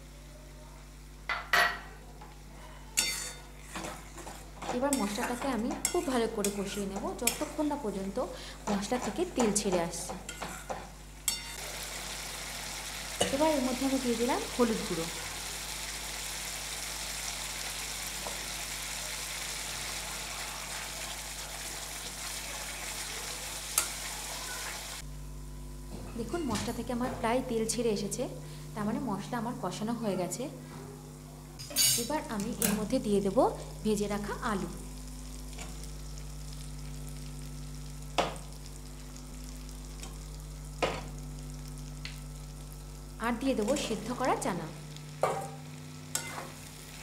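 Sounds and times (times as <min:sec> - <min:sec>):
spatula clinking against pan: 0:03.0 - 0:03.4
spatula stirring in wok: 0:03.0 - 0:07.6, 0:08.6 - 0:11.6
spices sizzling in oil: 0:03.0 - 0:25.0, 0:31.8 - 0:47.0
paste sizzling in hot oil: 0:10.2 - 0:25.0
steady low hum: 0:25.0 - 0:47.0.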